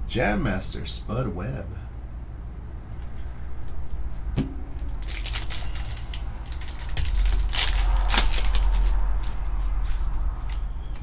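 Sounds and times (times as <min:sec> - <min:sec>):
low rumble: 0:00.0 - 0:01.1, 0:01.7 - 0:11.0
trading card packaging crinkling: 0:04.8 - 0:09.4.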